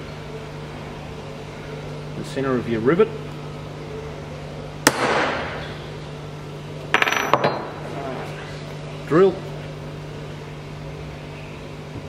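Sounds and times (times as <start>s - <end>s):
hammer striking metal punch: 4.8s - 5.5s.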